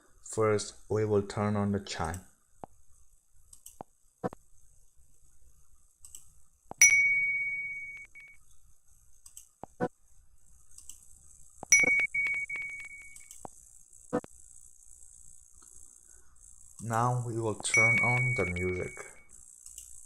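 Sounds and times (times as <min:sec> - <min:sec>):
soft mouse clicks: 0:03.5 - 0:04.4, 0:06.0 - 0:06.8, 0:09.2 - 0:09.9, 0:10.7 - 0:13.6, 0:19.6 - 0:20.0
bell-like ding chime: 0:06.8 - 0:08.4, 0:11.7 - 0:13.2, 0:17.7 - 0:19.2.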